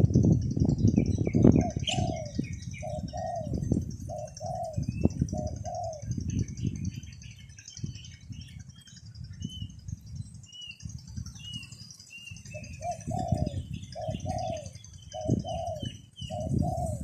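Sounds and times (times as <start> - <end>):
wind rumble on microphone: 0.0 - 17.0
dove cooing: 1.4 - 6.4, 12.4 - 17.0.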